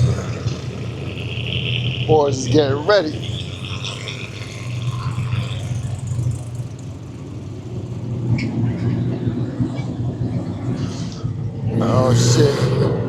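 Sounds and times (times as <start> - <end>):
drag race car engines droning: 0.0 - 13.0.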